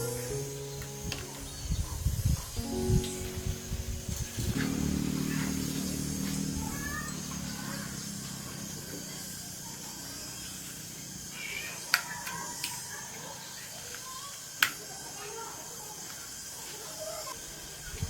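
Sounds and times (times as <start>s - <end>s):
low hum: 0.0s - 9.0s
birds chirping: 0.0s - 9.4s.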